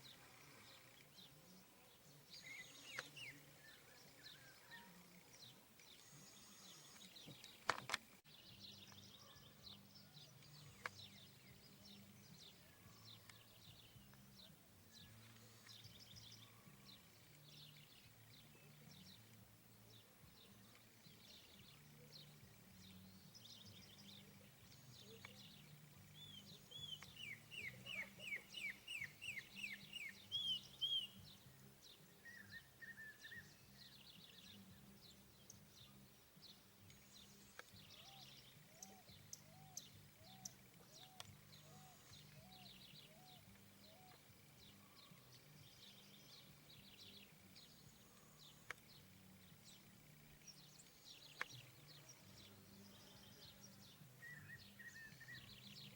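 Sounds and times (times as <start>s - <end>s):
small wild birds chirping: 0.0s - 55.9s
lower repeated bird notes: 20.4s - 55.9s.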